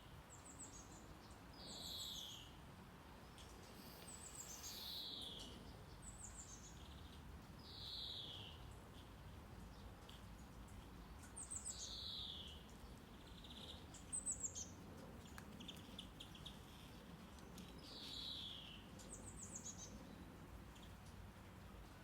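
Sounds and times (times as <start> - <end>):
soft steady hiss: 0.0 - 22.0
songbird singing with buzzy trill: 0.3 - 2.6, 3.3 - 9.0, 11.0 - 17.0, 17.6 - 21.2.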